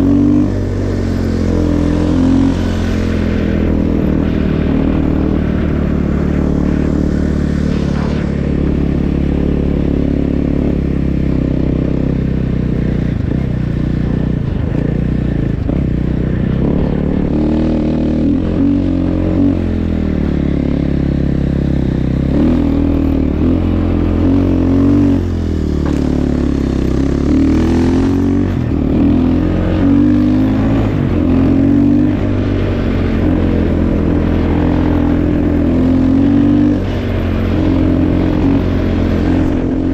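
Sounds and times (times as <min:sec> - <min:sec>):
snow bike engine revving: 0:00.0 - 0:39.9.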